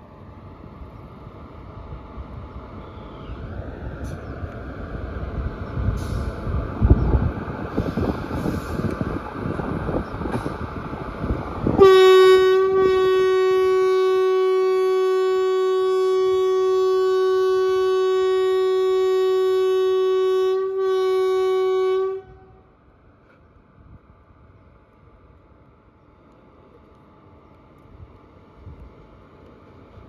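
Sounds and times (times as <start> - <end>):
train rumbling: 0.0 - 30.0
locomotive horn blast: 11.7 - 22.6.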